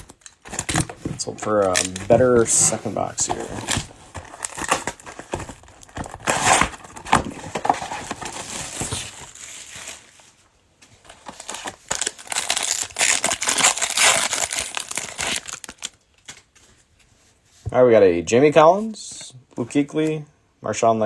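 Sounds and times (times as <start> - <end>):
plastic wrapping crinkling and tearing: 0.0 - 10.4, 11.0 - 17.0.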